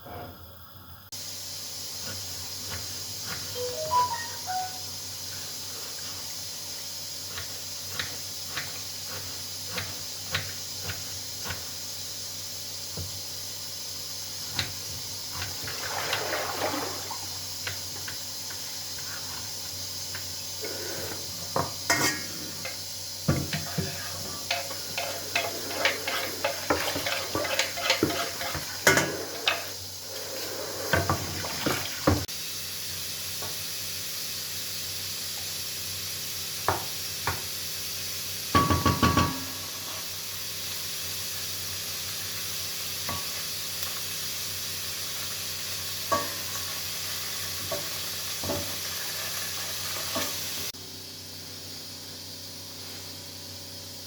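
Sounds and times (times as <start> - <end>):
dishes and utensils clinking: 3.5 - 4.8, 21.6 - 29.8
steady hiss: 13.5 - 38.4
running water: 15.3 - 19.3, 22.5 - 32.3.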